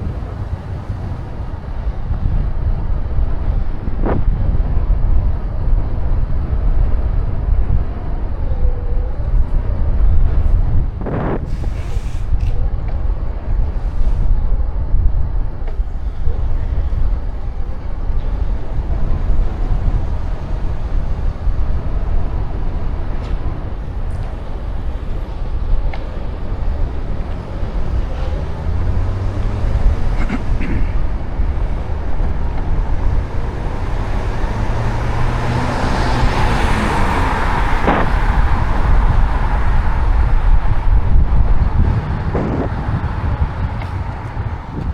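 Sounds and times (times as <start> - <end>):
wind rumbling on microphone: 0.0 - 44.9
motor vehicle passing: 26.2 - 44.9.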